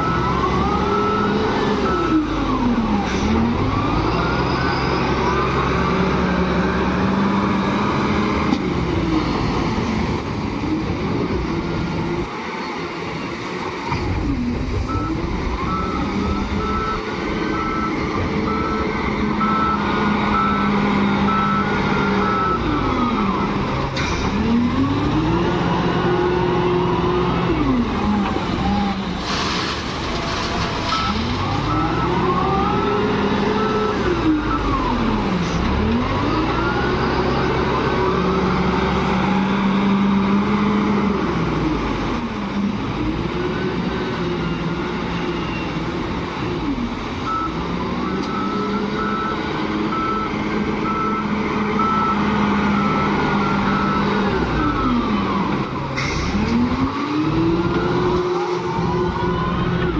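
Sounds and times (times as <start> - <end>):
wheel loader engine revving: 13.9 - 59.9
reversing alarm beeping: 14.8 - 26.3, 47.2 - 59.9.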